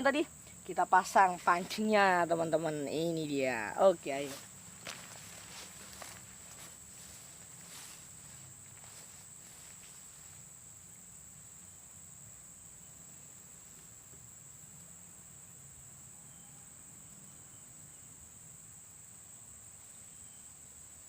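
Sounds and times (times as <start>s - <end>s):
high-pitched insect chorus: 0.0s - 21.0s
soft rustling footsteps: 0.9s - 10.5s.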